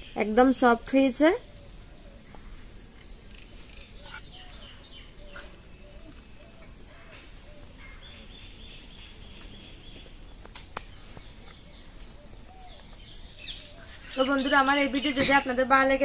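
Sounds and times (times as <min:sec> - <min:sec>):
birds calling and chirping: 0:00.0 - 0:16.0.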